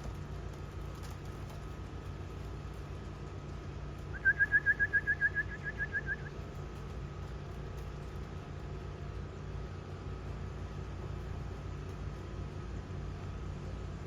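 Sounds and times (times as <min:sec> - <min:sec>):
steady low hum: 0:00.0 - 0:14.0
whistled trill of chirps: 0:04.1 - 0:06.3.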